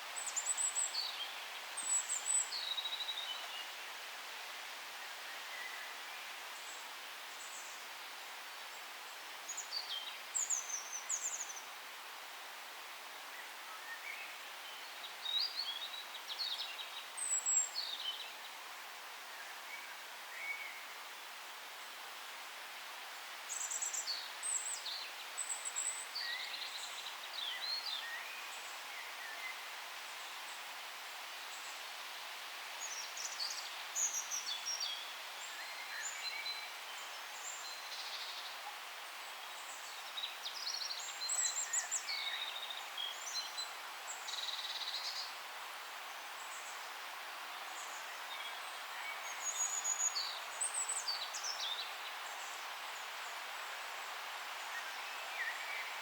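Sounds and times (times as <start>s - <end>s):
forest background hiss: 0.0s - 56.0s
songbirds singing: 32.8s - 56.0s.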